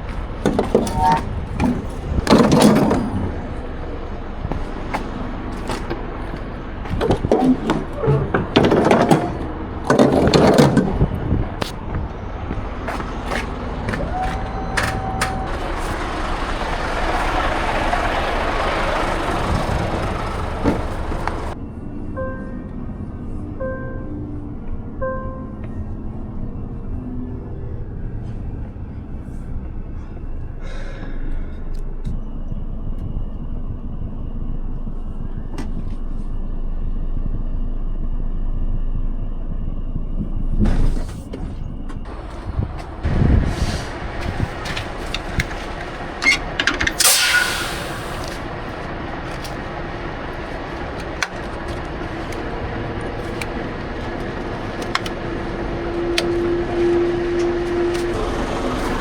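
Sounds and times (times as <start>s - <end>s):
diesel truck engine rumble: 0.0s - 59.0s
air hiss: 47.0s - 48.4s.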